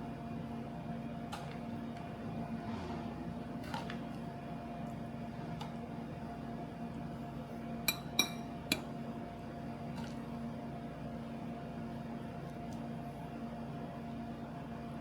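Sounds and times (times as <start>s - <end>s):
appliance hum: 0.0s - 15.0s
utensil clinking on tableware: 7.9s - 8.8s.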